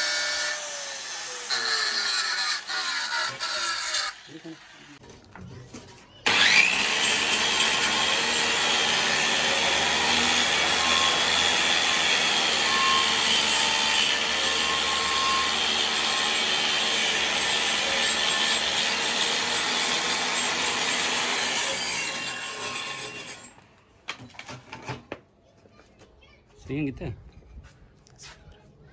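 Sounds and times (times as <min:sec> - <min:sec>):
angle grinder on steel: 0:00.0 - 0:05.0, 0:06.3 - 0:23.6.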